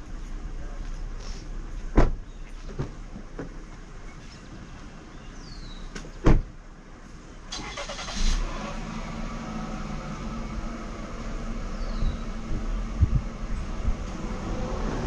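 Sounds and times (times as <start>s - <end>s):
car door shutting: 6.0s - 6.5s
car engine starting and idling: 7.2s - 15.0s.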